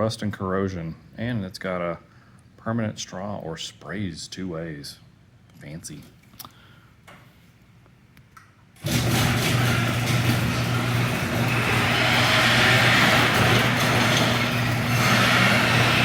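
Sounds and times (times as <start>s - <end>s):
door rattling along track: 8.8s - 16.0s
garage door motor hum: 8.8s - 16.0s.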